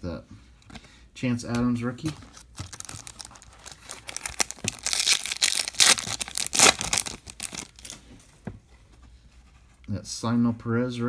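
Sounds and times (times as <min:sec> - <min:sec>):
foil wrapper tearing and crinkling: 0:02.3 - 0:08.0.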